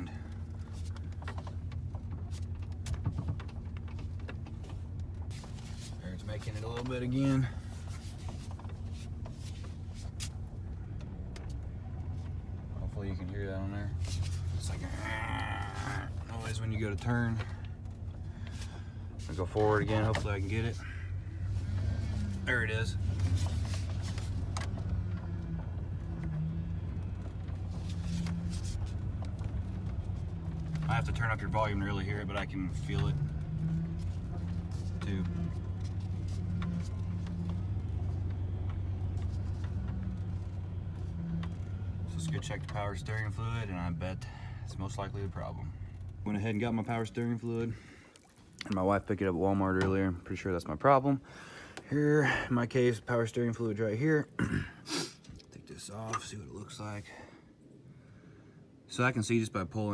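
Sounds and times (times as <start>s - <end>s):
pickup engine idling: 0.0s - 46.2s
power steering whine and grind: 0.0s - 47.7s.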